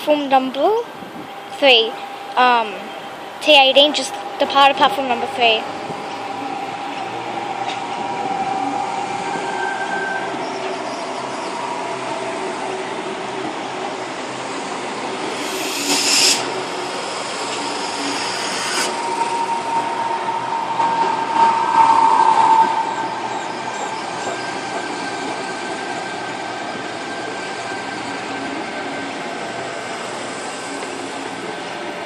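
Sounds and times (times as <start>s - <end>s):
electric train running on tracks: 0.0s - 32.0s
steady train whine: 0.0s - 32.0s
high-pitched wheel squeal: 6.0s - 12.9s, 15.3s - 26.1s.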